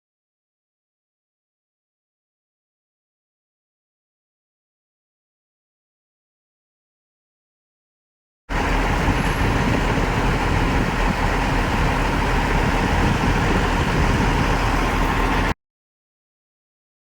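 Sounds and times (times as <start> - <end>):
fire engine rumbling: 8.5 - 15.6.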